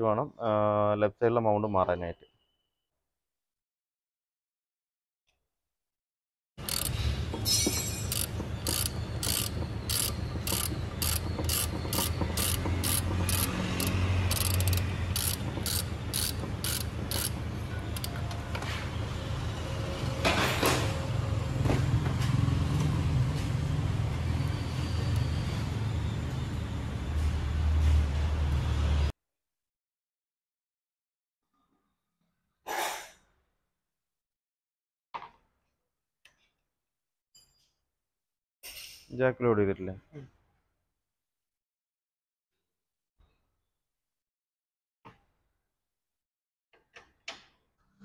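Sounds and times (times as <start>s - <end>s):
ratchet wrench clicking: 6.6s - 18.4s.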